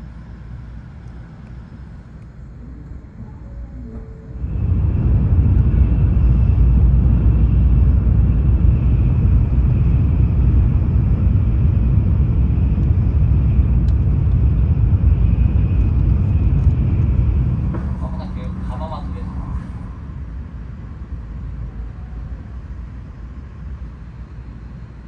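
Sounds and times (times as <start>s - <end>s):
train low rumble inside car: 0.0s - 25.0s.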